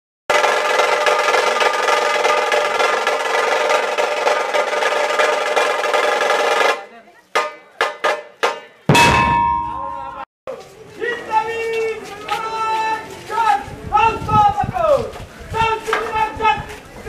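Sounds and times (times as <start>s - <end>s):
dhol drums playing fast rolls: 0.3s - 6.8s.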